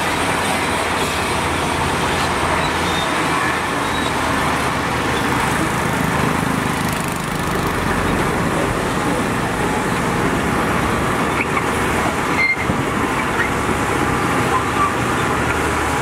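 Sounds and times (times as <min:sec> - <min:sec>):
heavy vehicle engines running: 0:00.0 - 0:16.0.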